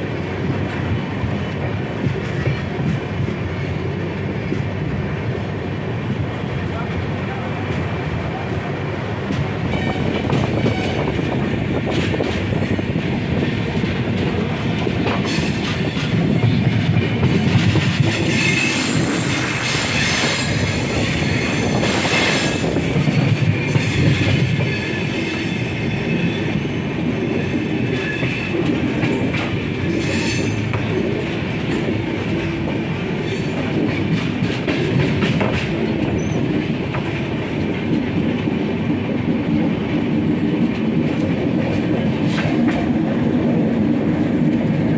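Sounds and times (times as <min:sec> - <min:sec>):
train wheels rumbling on rails: 0:00.0 - 0:44.9
high wheel squeal: 0:18.3 - 0:28.5.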